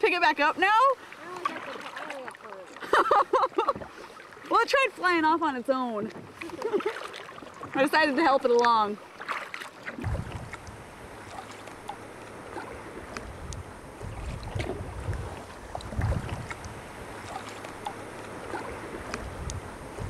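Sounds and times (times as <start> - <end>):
paddle splashes: 0.0 - 20.0
steady wash of water: 0.0 - 20.0
water drips and ticks: 1.4 - 20.0
wind noise on microphone: 9.9 - 20.0.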